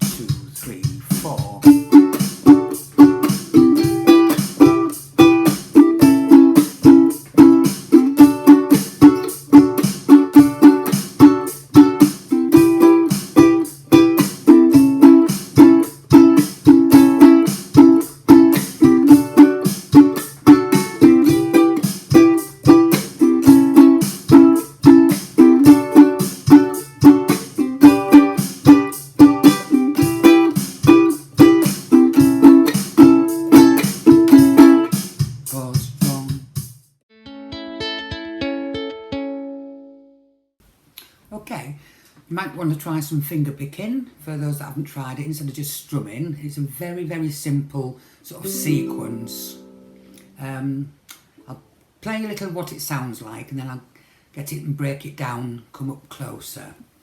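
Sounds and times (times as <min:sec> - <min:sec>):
ukulele strumming: 0:00.0 - 0:36.3, 0:37.1 - 0:40.2, 0:48.4 - 0:50.6
drum machine beat: 0:00.0 - 0:37.0.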